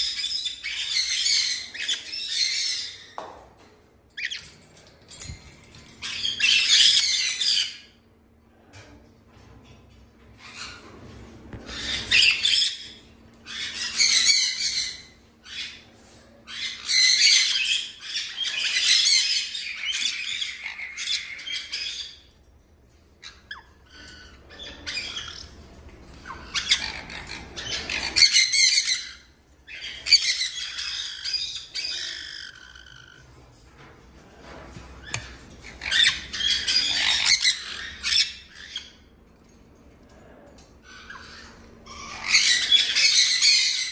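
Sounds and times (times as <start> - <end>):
parrots squawking: 0.0 - 3.3, 5.9 - 8.0, 11.6 - 22.3, 23.2 - 33.4, 35.0 - 39.1, 40.8 - 43.9.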